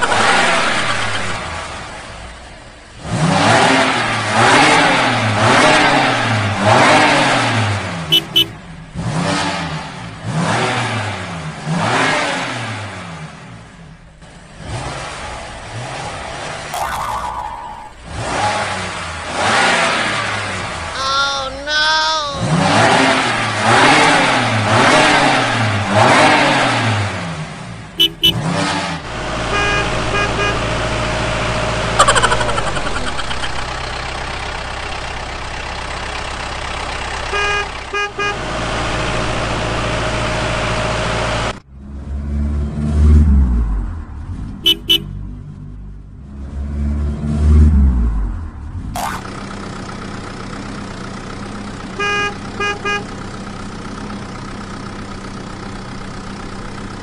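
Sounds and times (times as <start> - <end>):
vehicle engine revving: 0.0 - 16.8, 17.9 - 21.0, 22.4 - 57.0
short horn beeps: 8.1 - 8.6, 28.0 - 28.5, 29.5 - 30.7, 44.7 - 45.1, 52.0 - 53.1.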